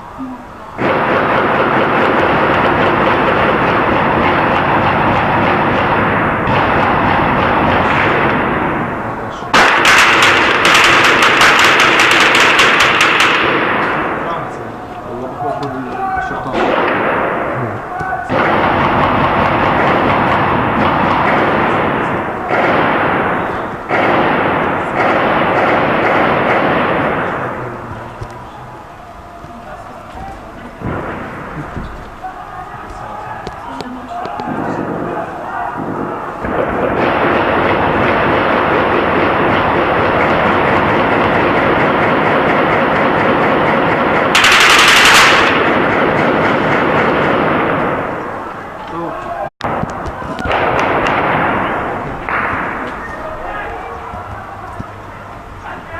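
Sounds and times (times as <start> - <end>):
heavy gunfire echoing: 0.8 - 29.8, 30.4 - 48.8, 49.6 - 55.9.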